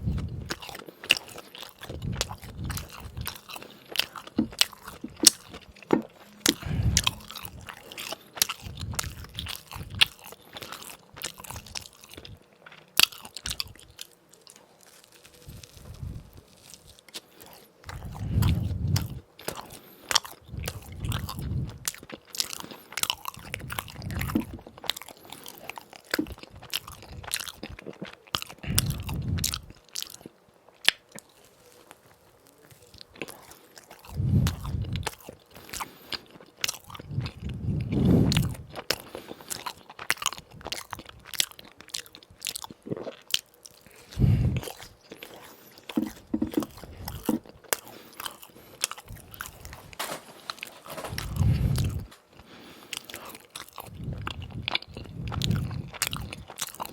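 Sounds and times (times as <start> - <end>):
person crunching fried donuts: 0.0 - 56.9.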